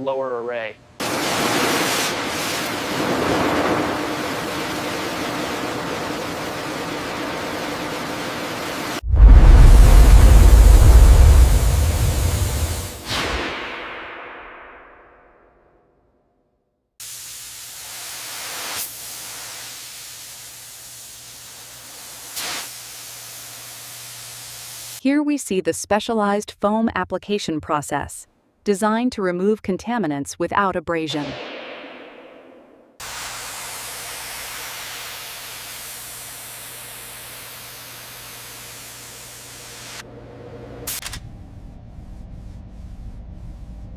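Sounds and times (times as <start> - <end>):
foam spray hissing: 1.0 - 13.2, 17.0 - 25.0, 33.0 - 40.0
low hum: 9.0 - 13.1, 41.0 - 43.9
faint low hum: 41.2 - 43.9.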